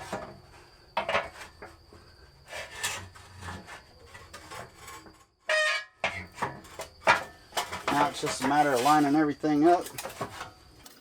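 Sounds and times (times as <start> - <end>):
metal clank: 5.5 - 9.0
metal parts scraping: 6.4 - 9.2.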